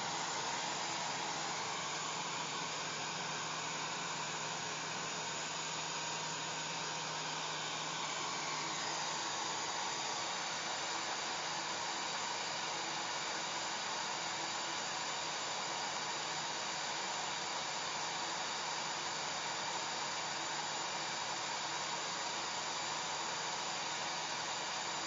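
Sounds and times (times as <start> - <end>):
hair dryer blowing air: 0.0 - 14.4.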